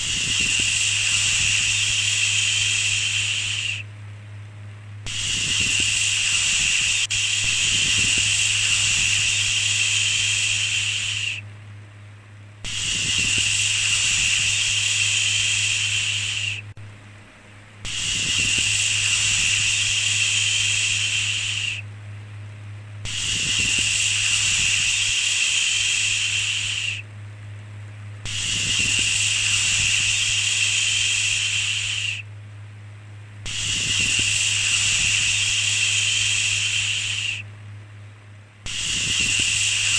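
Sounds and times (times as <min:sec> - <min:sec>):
steady low hum: 0:00.0 - 0:39.9
person shushing: 0:05.1 - 0:11.4, 0:12.7 - 0:16.7, 0:17.9 - 0:21.8, 0:23.1 - 0:27.0.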